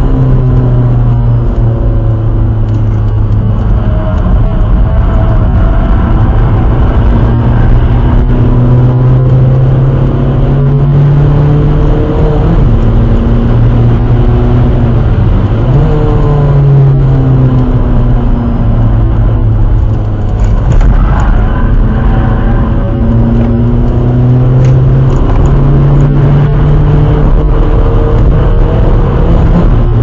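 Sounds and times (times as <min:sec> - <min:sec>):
diesel engine accelerating: 0:00.0 - 0:30.0
road and wind noise: 0:00.0 - 0:30.0.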